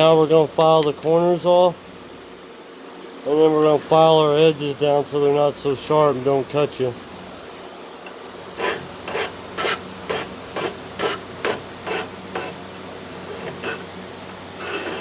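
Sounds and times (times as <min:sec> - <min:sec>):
hand file rasping: 0:08.6 - 0:12.6, 0:13.2 - 0:13.9, 0:14.6 - 0:15.0.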